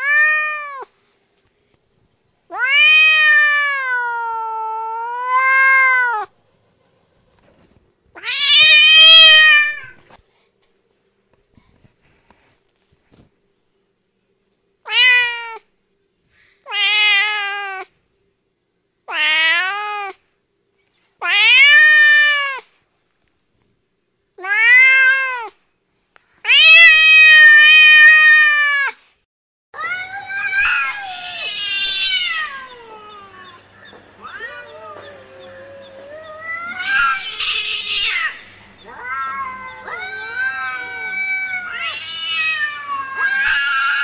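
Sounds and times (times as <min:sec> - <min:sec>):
cat meowing: 0:00.0 - 0:00.9, 0:02.5 - 0:06.3, 0:08.2 - 0:10.0, 0:14.9 - 0:15.6, 0:16.7 - 0:17.9, 0:19.1 - 0:20.2, 0:21.2 - 0:22.6, 0:24.4 - 0:25.6, 0:26.4 - 0:29.0, 0:29.8 - 0:33.6, 0:34.2 - 0:44.0
cat yowling: 0:00.0 - 0:00.9, 0:02.5 - 0:06.3, 0:08.2 - 0:10.0, 0:14.9 - 0:15.6, 0:16.7 - 0:17.9, 0:19.1 - 0:20.2, 0:21.2 - 0:22.6, 0:24.4 - 0:25.5, 0:26.5 - 0:29.0, 0:29.8 - 0:33.6, 0:34.2 - 0:44.0.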